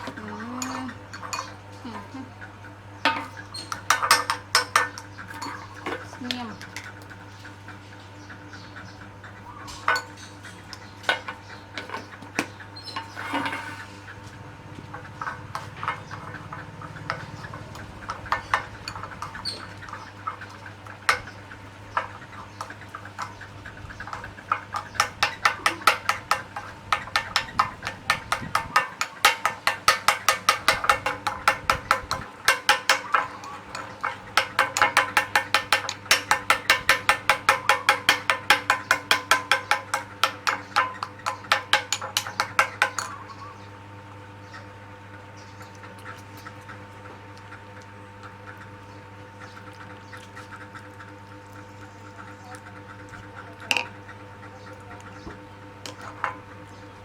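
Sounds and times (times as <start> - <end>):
spoon clinking against cup: 0.6 - 1.6.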